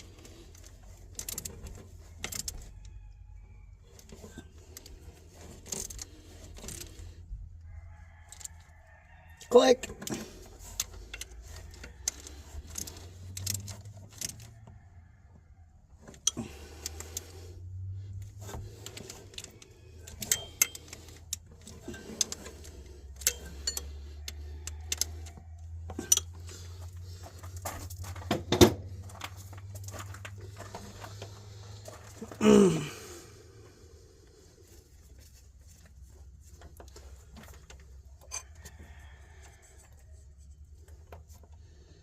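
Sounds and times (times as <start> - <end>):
metal tools clinking: 18.8 - 24.2, 25.9 - 26.5, 38.2 - 38.6.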